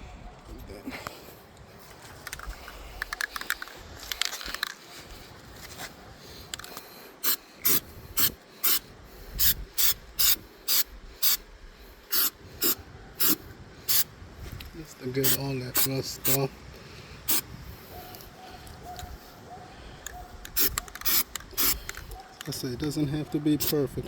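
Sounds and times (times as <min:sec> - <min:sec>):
short hissing strokes: 0:07.0 - 0:14.5, 0:15.2 - 0:18.3, 0:20.5 - 0:22.1.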